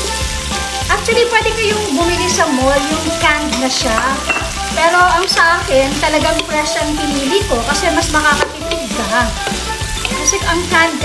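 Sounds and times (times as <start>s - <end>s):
background music: 0.0s - 11.0s
vegetables sizzling in a pot: 0.0s - 11.0s
wooden spoon stirring: 2.8s - 10.7s.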